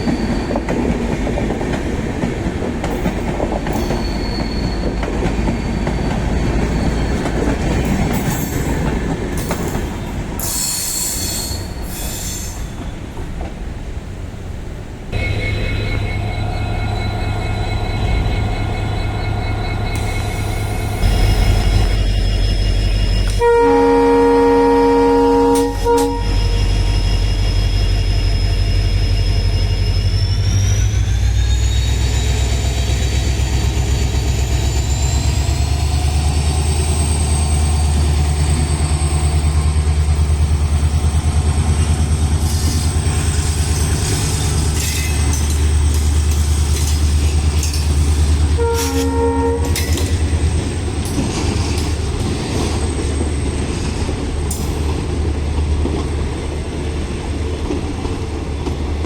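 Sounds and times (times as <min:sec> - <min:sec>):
wheels clacking over rail joints: 0:00.0 - 0:14.0, 0:32.6 - 0:59.0
locomotive engine rumble and whine: 0:12.8 - 0:59.0
train horn: 0:15.2 - 0:20.3, 0:23.3 - 0:27.1, 0:48.5 - 0:50.2.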